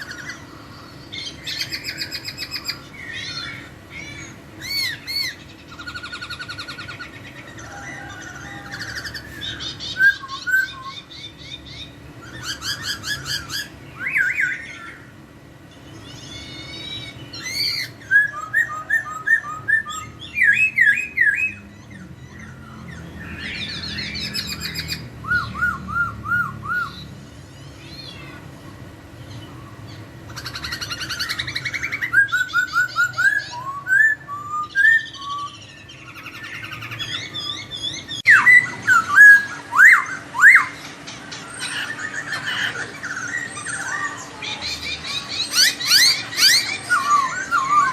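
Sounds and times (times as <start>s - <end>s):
bird singing whistled trills: 1.1s - 15.0s, 16.7s - 27.1s, 30.4s - 40.8s, 45.4s - 47.9s.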